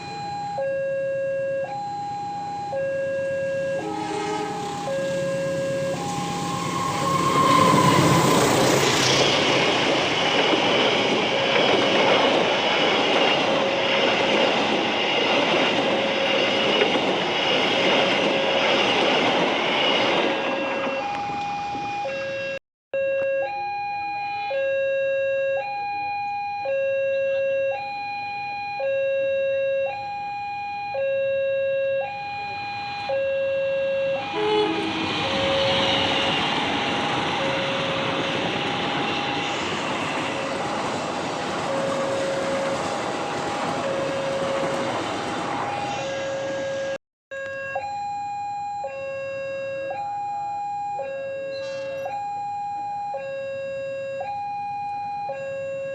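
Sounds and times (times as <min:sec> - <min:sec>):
level crossing alarm two tones: 0:00.0 - 0:09.9, 0:20.6 - 0:40.5, 0:41.4 - 0:55.9
passing train rumble: 0:02.7 - 0:22.5, 0:34.2 - 0:47.0.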